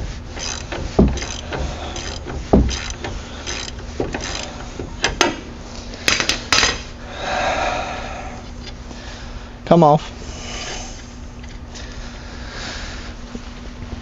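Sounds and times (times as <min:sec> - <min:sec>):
rough metal scrape: 0:00.0 - 0:04.6
sharp metallic clicks: 0:00.4 - 0:04.5
metal tools clinking: 0:00.4 - 0:04.6.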